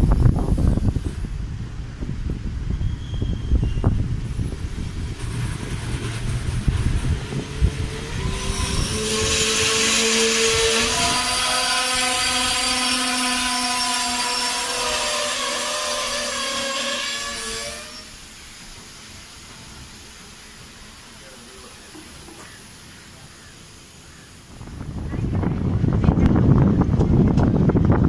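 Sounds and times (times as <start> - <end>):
train rumble: 0.0 - 28.0
train wheels squealing: 2.7 - 4.6, 7.9 - 18.2
hiss: 3.4 - 24.7.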